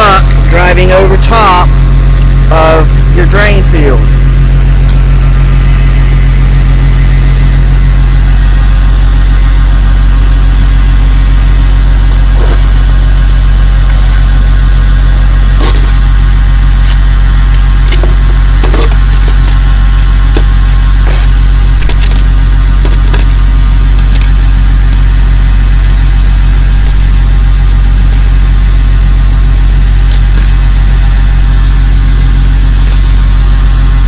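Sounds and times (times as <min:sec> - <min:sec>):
engine idling: 0:00.0 - 0:34.0.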